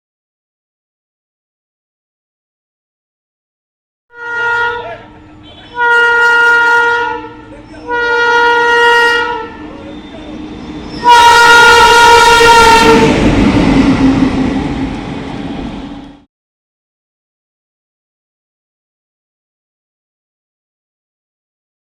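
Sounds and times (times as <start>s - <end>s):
locomotive air horn blasts: 4.1s - 10.1s, 11.0s - 13.2s
train passing close by: 4.2s - 16.3s.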